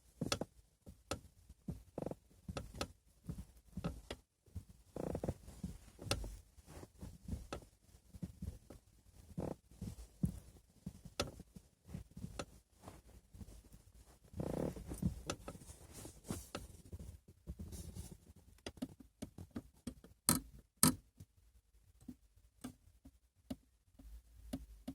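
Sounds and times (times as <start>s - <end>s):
clicks and knocks from car seat: 0.2s - 6.4s, 14.4s - 18.0s.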